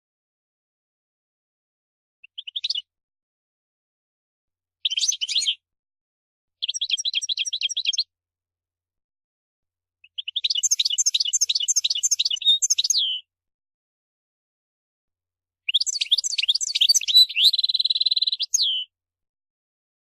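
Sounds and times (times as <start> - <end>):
goldfinch twittering: 10.2 - 13.1, 15.7 - 18.8.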